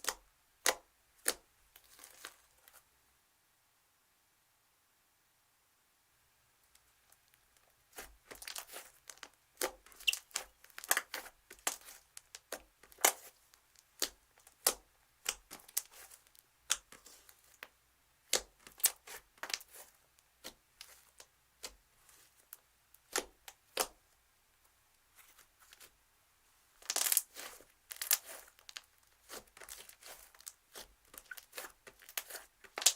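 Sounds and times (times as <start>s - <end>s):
slime crackling and popping: 7.9s - 17.6s, 18.2s - 22.3s, 23.0s - 24.0s, 26.8s - 32.9s.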